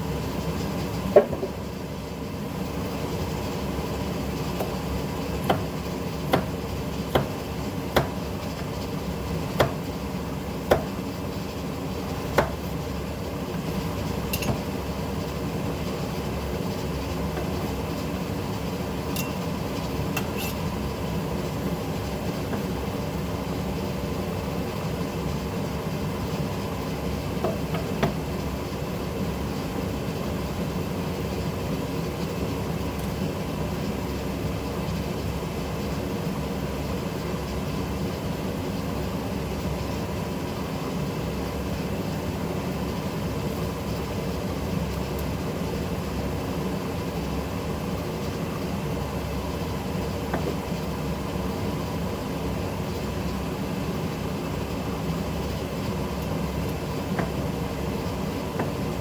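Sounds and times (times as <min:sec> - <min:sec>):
utensils knocking against cookware: 0:14.3 - 0:14.7, 0:19.1 - 0:19.4.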